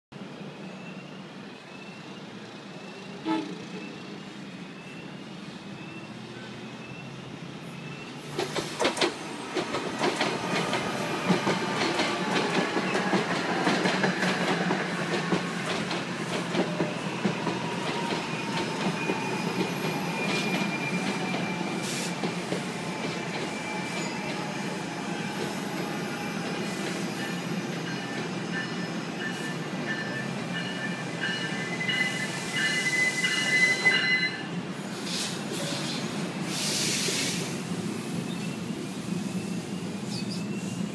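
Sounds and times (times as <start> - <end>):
electric train passing: 0.2 - 40.9
wheel squeal: 16.7 - 34.4, 39.3 - 40.9.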